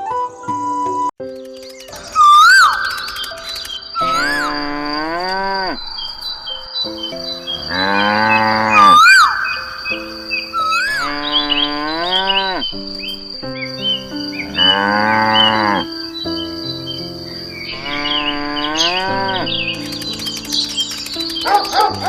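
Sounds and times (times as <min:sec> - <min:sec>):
birds chirping: 0:00.9 - 0:22.0
cricket-like trill: 0:01.4 - 0:22.0
cattle mooing: 0:04.1 - 0:05.8, 0:07.6 - 0:09.4, 0:10.6 - 0:12.7, 0:14.5 - 0:15.9, 0:17.8 - 0:19.5.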